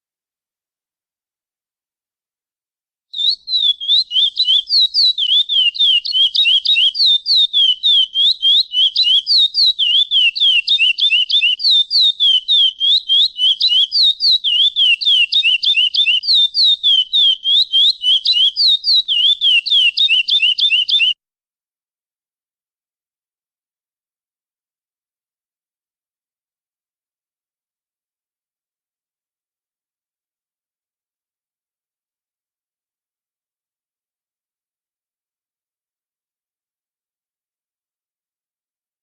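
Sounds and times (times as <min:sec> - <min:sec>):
finch singing whistled notes: 0:03.2 - 0:21.2.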